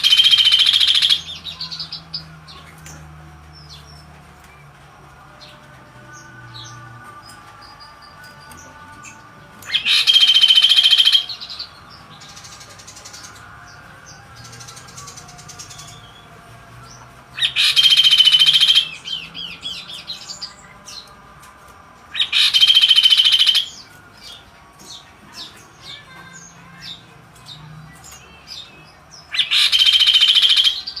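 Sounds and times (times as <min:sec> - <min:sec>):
songbird buzzy trilling: 0:00.0 - 0:02.3, 0:09.6 - 0:13.4, 0:17.4 - 0:20.6, 0:22.1 - 0:31.0.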